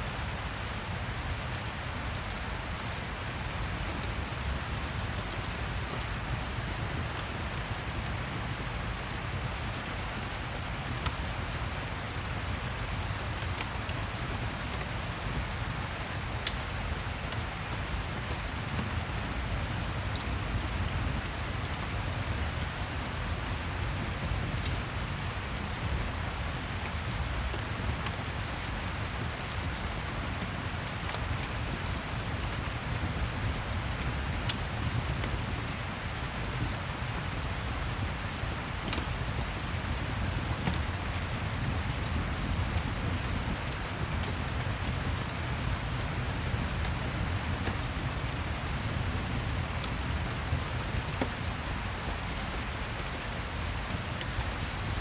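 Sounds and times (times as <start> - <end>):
steady rain falling: 0.0 - 55.0
fireplace crackling and popping: 13.4 - 22.9, 48.4 - 55.0.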